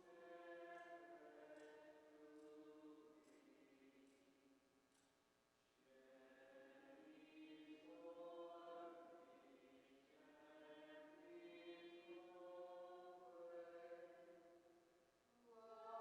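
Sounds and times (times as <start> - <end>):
faint hymn singing: 0.0 - 4.5, 5.8 - 16.0.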